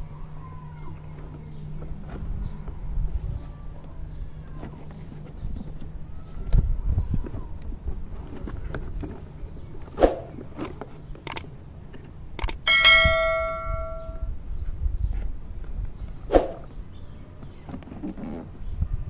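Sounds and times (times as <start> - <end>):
metallic ring: 12.4 - 14.3.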